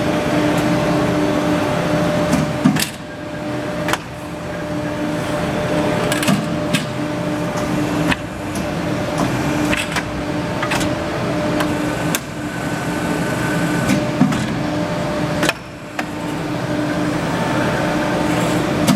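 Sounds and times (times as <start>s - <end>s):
tube bending machine humming: 0.0s - 18.9s
machine clicks and knocks: 6.0s - 7.0s, 8.1s - 11.0s.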